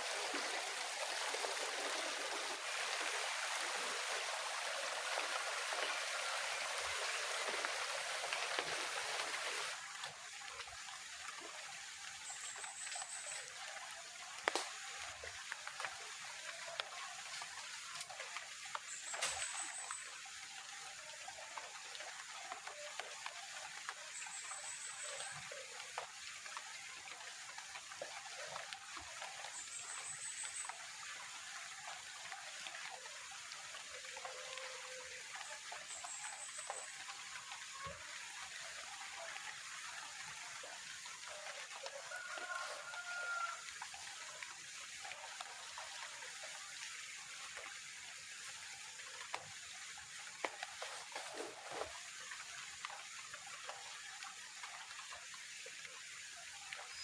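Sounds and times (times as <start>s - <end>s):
rain falling: 0.0s - 57.0s
water drips tapping: 40.1s - 46.0s, 48.7s - 55.1s.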